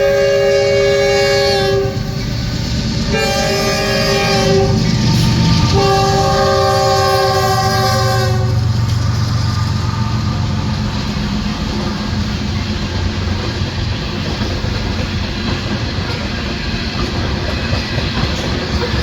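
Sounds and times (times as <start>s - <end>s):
locomotive air horn blasts: 0.0s - 2.3s, 3.1s - 8.7s
diesel engines rumbling: 0.0s - 17.4s.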